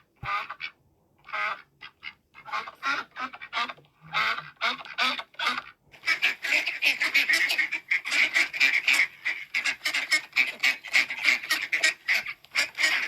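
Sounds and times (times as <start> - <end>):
flock of ducks quacking: 0.2 - 13.0.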